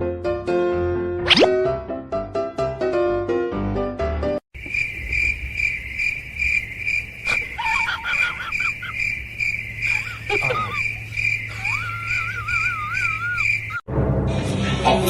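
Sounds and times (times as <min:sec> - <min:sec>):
cricket chirping: 0:04.6 - 0:13.8
faint gliding calls: 0:04.6 - 0:13.8.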